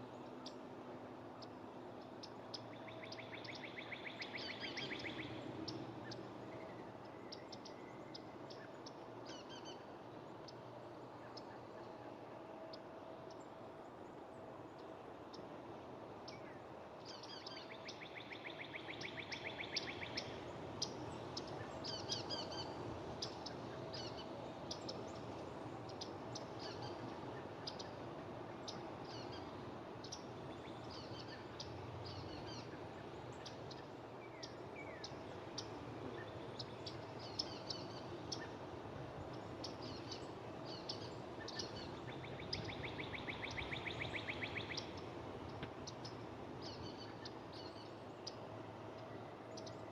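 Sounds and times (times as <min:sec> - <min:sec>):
small birds chirping: 0:28.6 - 0:38.6, 0:39.2 - 0:49.9.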